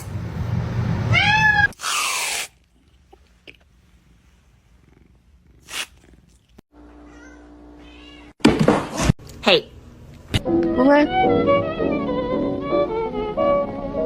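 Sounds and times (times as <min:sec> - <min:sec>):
cat meowing: 0:01.1 - 0:01.8, 0:07.1 - 0:08.4.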